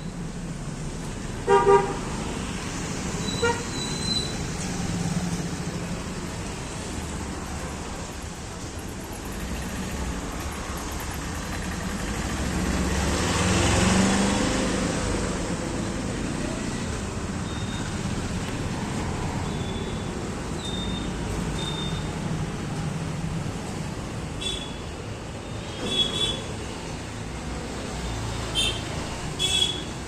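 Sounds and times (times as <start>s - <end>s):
road traffic: 0.0s - 30.0s
vehicle horn honking: 1.5s - 2.0s, 3.3s - 3.8s, 29.4s - 29.9s
vehicle passing: 9.3s - 16.8s.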